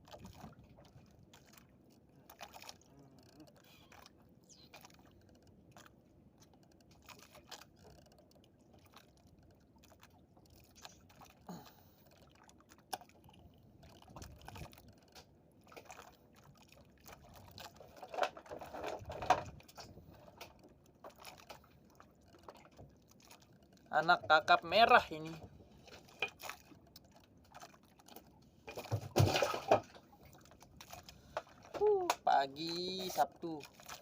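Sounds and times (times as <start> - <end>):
faint clicks and handling noise: 0.1 - 11.4, 12.0 - 23.9.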